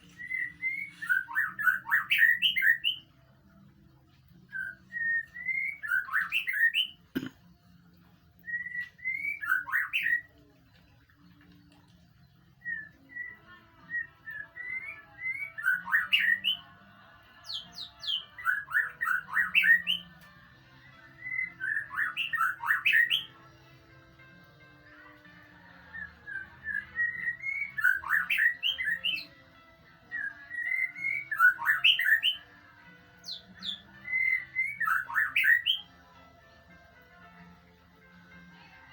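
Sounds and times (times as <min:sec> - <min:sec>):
bird whistling and trilling: 0:00.0 - 0:03.1, 0:04.5 - 0:07.0, 0:08.4 - 0:10.3, 0:12.6 - 0:16.6, 0:17.5 - 0:20.1, 0:21.2 - 0:23.3, 0:26.0 - 0:29.3, 0:30.1 - 0:32.4, 0:33.2 - 0:35.9.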